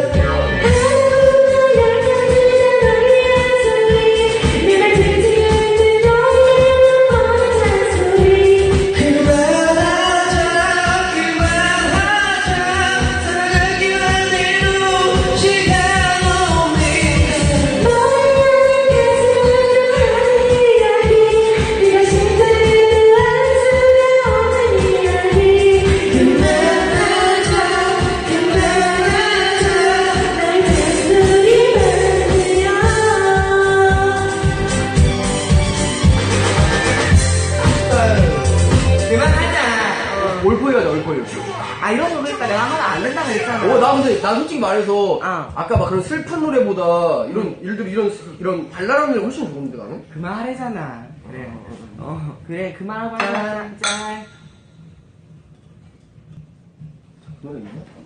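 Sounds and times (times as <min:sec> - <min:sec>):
person singing a sad ballad: 0:00.0 - 0:35.5
karaoke backing track: 0:00.0 - 0:58.0.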